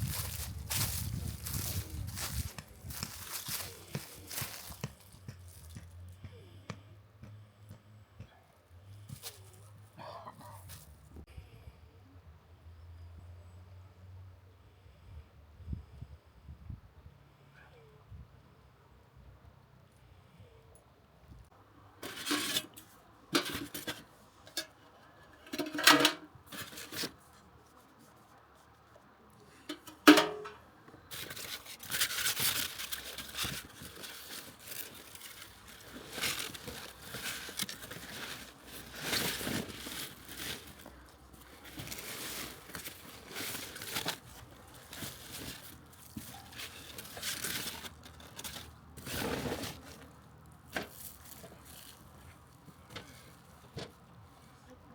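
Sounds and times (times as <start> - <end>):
rustling and crinkling handling noise: 0.0 - 6.0, 9.0 - 11.2, 22.0 - 54.9.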